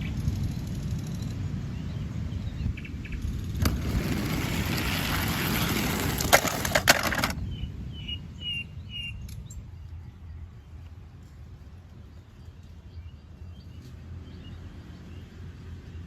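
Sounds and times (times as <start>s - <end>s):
rustling: 3.6s - 7.4s.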